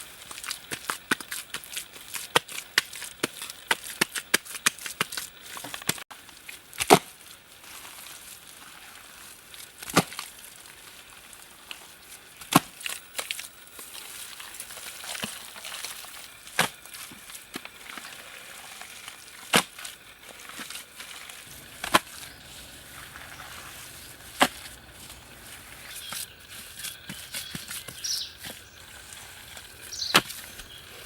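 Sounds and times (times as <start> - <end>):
wood chopping blows: 21.5 - 23.2, 24.1 - 26.2.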